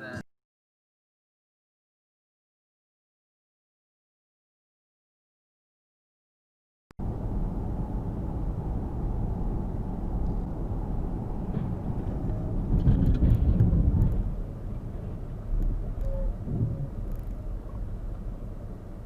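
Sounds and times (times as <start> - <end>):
car road and engine rumble: 7.0 - 19.0.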